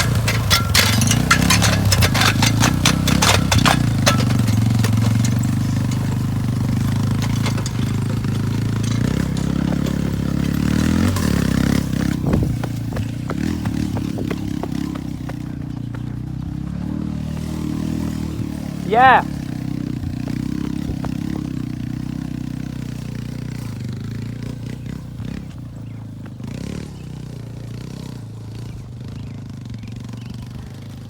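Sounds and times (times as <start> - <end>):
rattling scraping clatter: 0.0 - 24.9
motorcycle engine running: 0.0 - 31.0.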